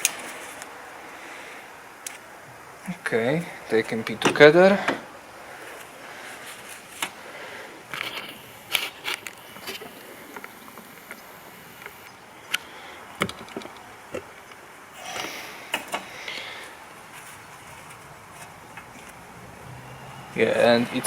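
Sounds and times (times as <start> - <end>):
short rustle: 4.8 - 12.1, 15.0 - 19.2
light clicks and knocks of parts: 7.9 - 14.7.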